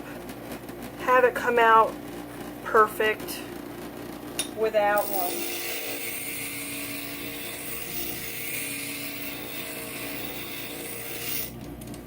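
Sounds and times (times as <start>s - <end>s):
grinder motor hum: 4.9s - 12.0s
hissing grind of glass: 5.0s - 11.6s.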